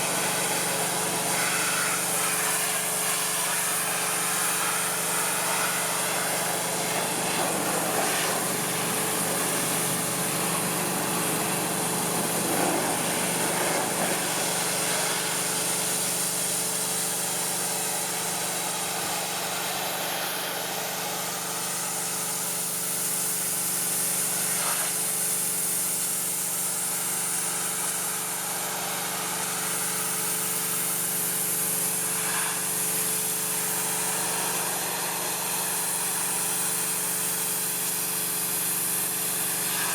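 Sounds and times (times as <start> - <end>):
water jet spraying: 0.0 - 19.9, 29.8 - 37.8
pressure washer motor humming: 0.0 - 39.9.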